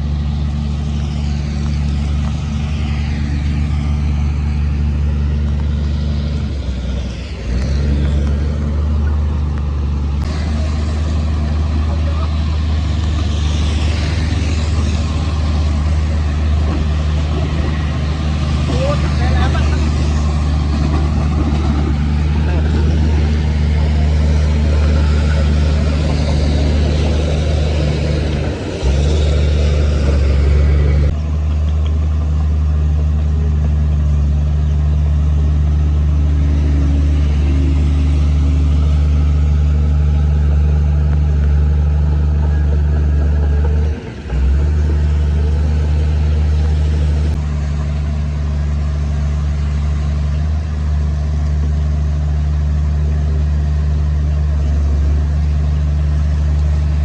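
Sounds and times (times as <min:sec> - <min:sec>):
deep diesel engine drone: 0:00.0 - 0:57.0
machinery noise: 0:00.0 - 0:57.0.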